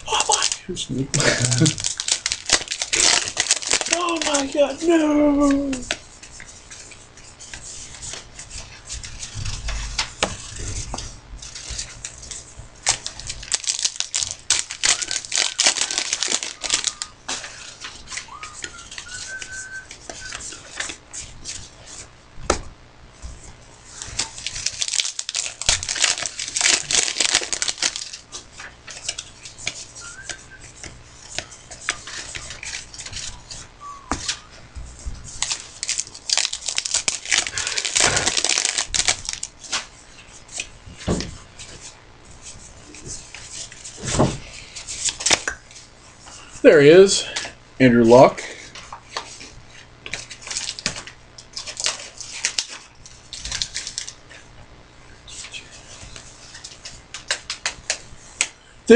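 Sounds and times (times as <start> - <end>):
card packs tearing open: 0.0 - 0.6, 1.2 - 6.0, 12.8 - 21.6, 23.9 - 30.4, 35.3 - 39.9, 50.2 - 54.2
foil wrappers crinkling: 0.0 - 22.1, 23.3 - 54.5, 55.2 - 58.9
cards shuffled and rustling: 1.2 - 22.6, 23.2 - 46.3, 48.6 - 54.5, 55.3 - 58.6.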